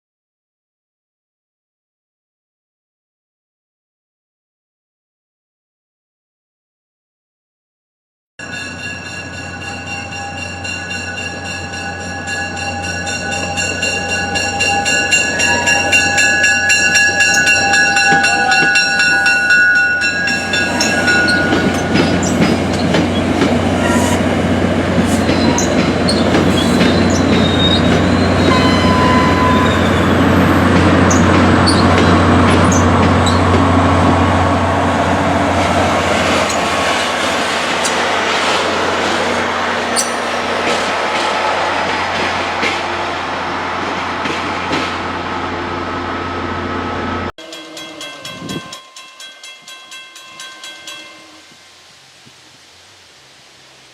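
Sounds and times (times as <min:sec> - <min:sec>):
steady high tones: 0:08.4 - 0:23.4
wheels clattering on rails: 0:08.4 - 0:34.6, 0:35.6 - 0:43.1, 0:43.8 - 0:45.2
diesel train engine humming: 0:08.4 - 0:47.3.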